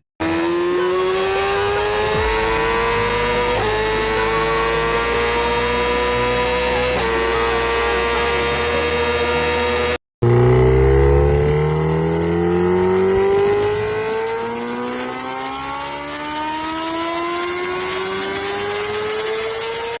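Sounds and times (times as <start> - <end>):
motorcycle engine accelerating: 0.0 - 20.0
steady high drone: 0.2 - 19.8.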